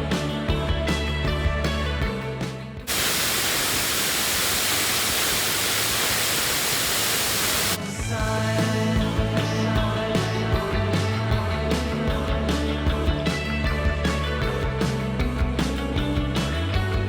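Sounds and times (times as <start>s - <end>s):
rock music: 0.0s - 6.5s, 7.2s - 17.0s
waterfall rushing: 2.9s - 7.8s.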